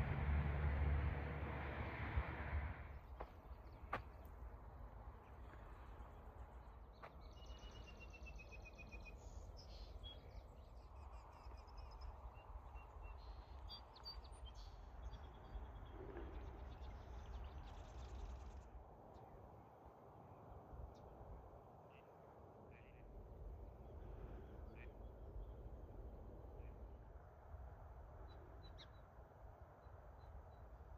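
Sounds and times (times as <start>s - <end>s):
low wind rumble: 0.0s - 30.9s
songbird singing: 2.9s - 19.6s, 28.1s - 30.9s.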